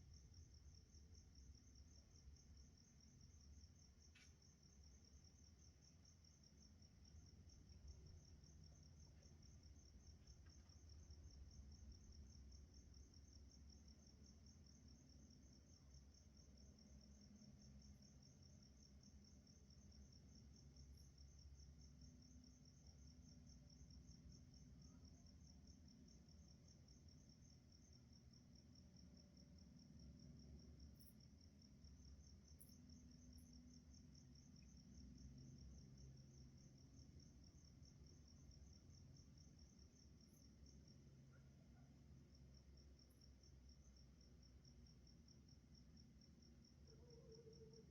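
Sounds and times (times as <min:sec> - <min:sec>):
crickets chirping: 0:00.0 - 0:47.9.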